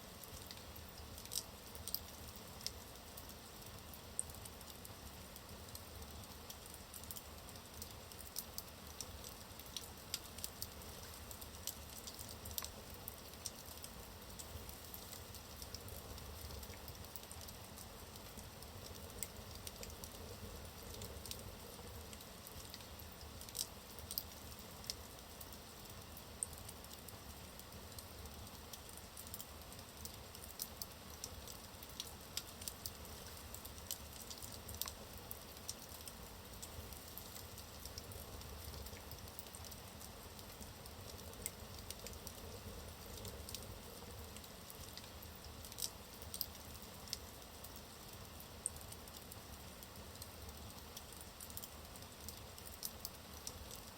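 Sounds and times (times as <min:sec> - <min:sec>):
wood fire crackling and popping: 0:00.2 - 0:53.9.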